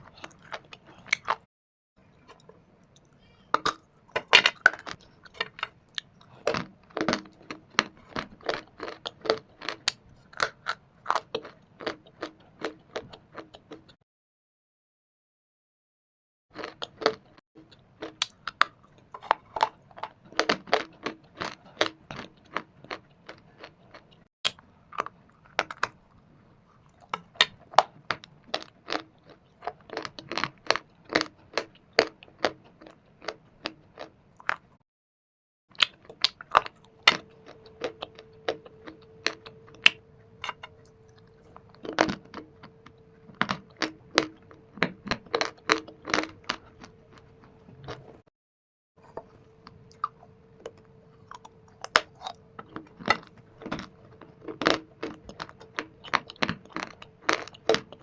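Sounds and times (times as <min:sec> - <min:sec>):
stone and clay being chewed: 0:00.0 - 0:01.5, 0:02.1 - 0:13.9, 0:16.6 - 0:34.7, 0:35.7 - 0:48.2, 0:49.0 - 0:58.0
faint steady hum: 0:35.8 - 0:48.2, 0:49.0 - 0:58.0.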